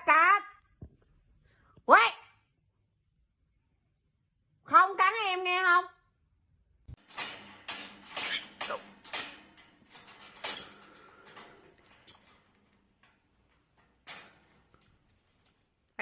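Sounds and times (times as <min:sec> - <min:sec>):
high squeaks: 0:07.8 - 0:09.3, 0:09.9 - 0:12.6.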